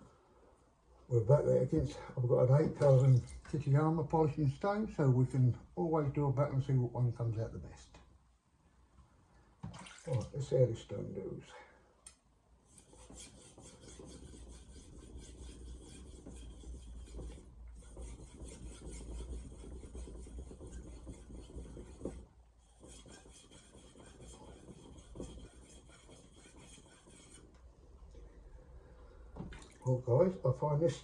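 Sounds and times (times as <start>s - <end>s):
knife scraping on whetstone: 12.7s - 27.5s.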